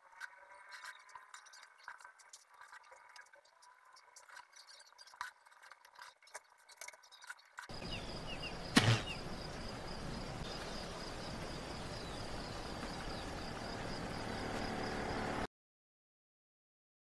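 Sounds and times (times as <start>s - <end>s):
steady hiss: 7.7s - 14.8s
loud thump: 8.7s - 9.2s.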